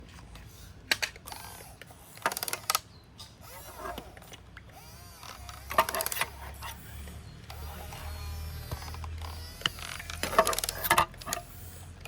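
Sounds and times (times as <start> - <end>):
faint motor whine: 0.0 - 12.0
toy gear motors: 0.3 - 12.0.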